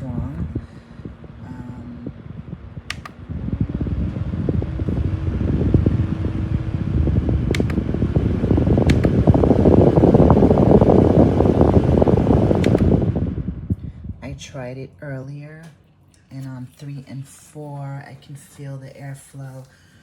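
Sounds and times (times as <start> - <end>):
fan airflow buffeting microphone: 0.0 - 20.0
fan button clicks: 2.7 - 13.8.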